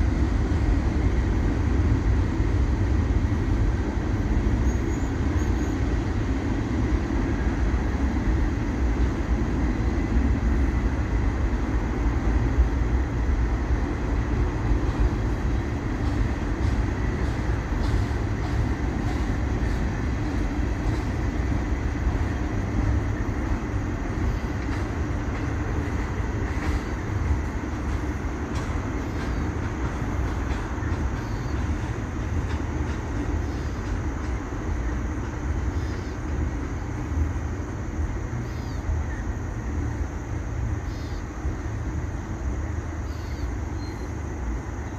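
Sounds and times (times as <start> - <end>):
freight train rumbling past: 0.0 - 44.9
faint rail clicks: 15.3 - 23.6, 24.2 - 34.6.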